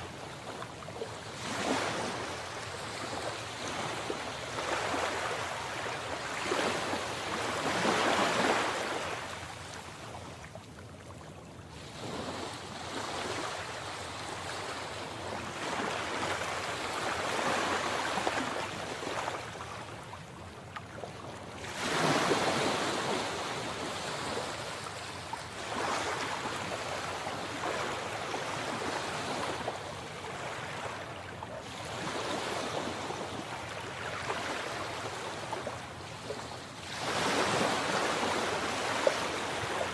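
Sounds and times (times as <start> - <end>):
sea waves breaking: 0.1 - 9.4, 21.6 - 39.9.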